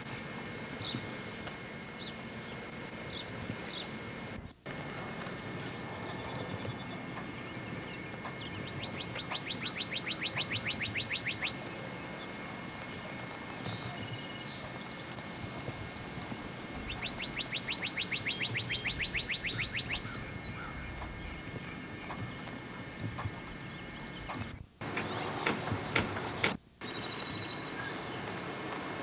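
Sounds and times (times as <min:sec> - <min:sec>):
bird singing rapid trill: 0:05.7 - 0:15.4, 0:16.7 - 0:25.4, 0:26.8 - 0:28.5.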